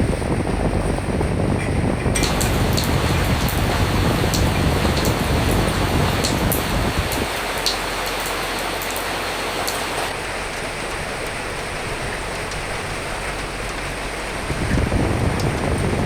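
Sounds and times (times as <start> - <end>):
steady rainfall: 0.0 - 16.0
sharp drop ticks: 2.2 - 10.1.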